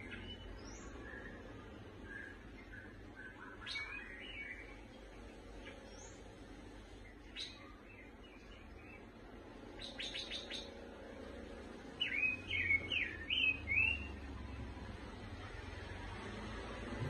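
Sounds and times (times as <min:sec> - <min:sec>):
bird chirping and whistling: 0:02.0 - 0:04.7, 0:12.0 - 0:14.1.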